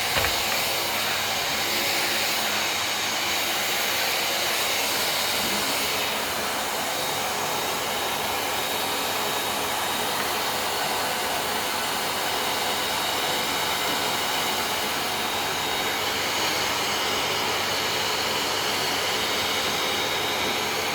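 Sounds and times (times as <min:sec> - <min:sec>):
vacuum cleaner motor running: 0:00.0 - 0:20.9.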